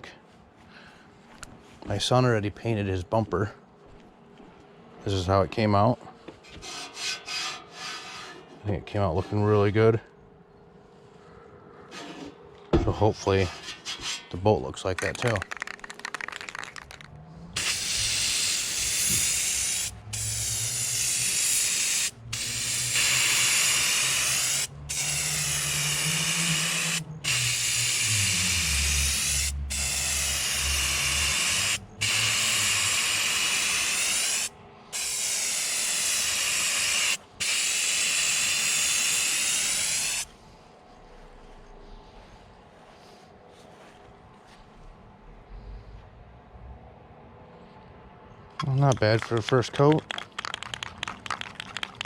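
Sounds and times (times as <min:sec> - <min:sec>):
spray gun hissing: 0:17.6 - 0:40.3.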